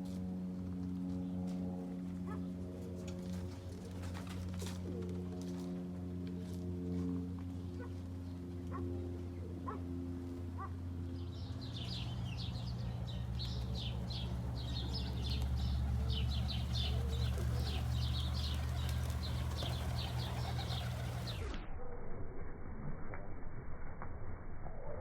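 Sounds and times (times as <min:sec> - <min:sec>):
steady low hum: 0:05.0 - 0:24.5
birds chirping: 0:10.6 - 0:21.6.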